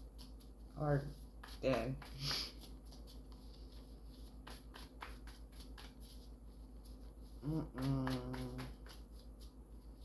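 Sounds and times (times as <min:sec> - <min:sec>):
low electrical hum: 0:00.0 - 0:10.0
person humming mm-hmm: 0:07.4 - 0:08.8.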